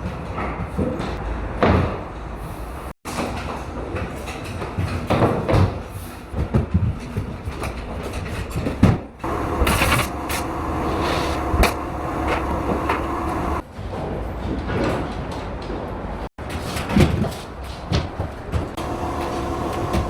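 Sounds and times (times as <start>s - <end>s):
faint hum: 9.2s - 13.6s, 18.8s - 20.0s
rolling rumble: 9.2s - 13.6s, 18.8s - 20.0s.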